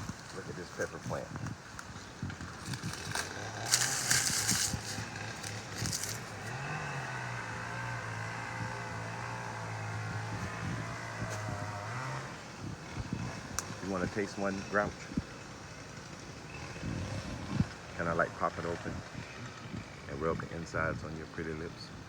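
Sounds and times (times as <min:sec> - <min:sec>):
plant leaves rustling: 0:00.0 - 0:06.8
motor engine humming: 0:00.0 - 0:22.0.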